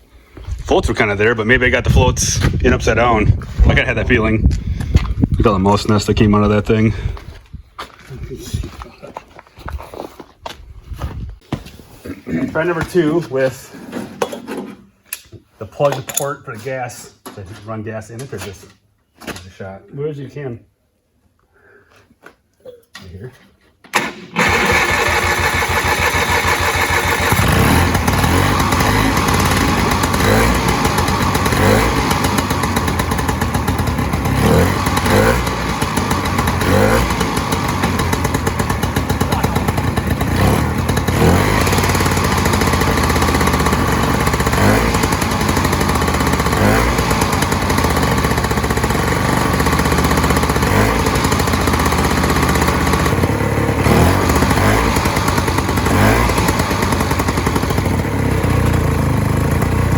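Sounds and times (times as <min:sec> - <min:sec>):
snowmobile two-stroke engine running: 0:24.0 - 0:59.9.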